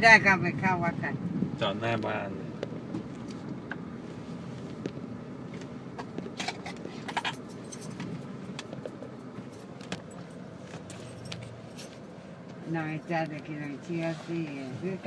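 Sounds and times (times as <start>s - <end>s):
car cabin hum: 0.0s - 15.0s
keys jingling: 6.5s - 12.1s.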